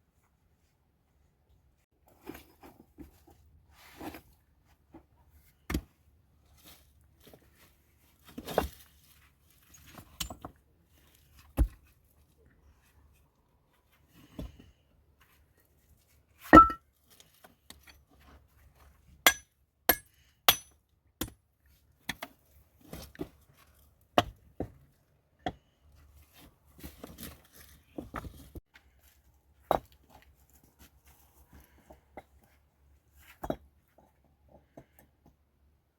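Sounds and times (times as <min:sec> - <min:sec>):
sharp knocks and clinks: 0:16.6 - 0:16.8.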